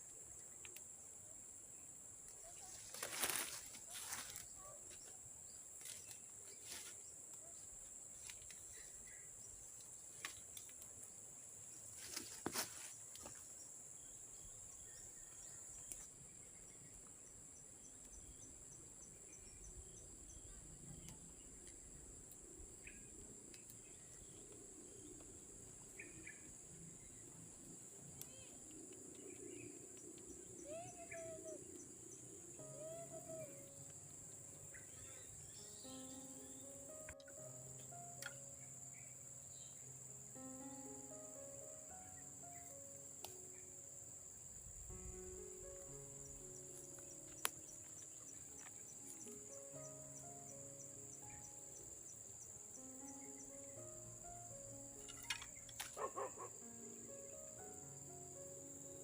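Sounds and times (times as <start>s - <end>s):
insect trilling: 22.4s - 59.0s
bird chirps: 28.2s - 41.0s.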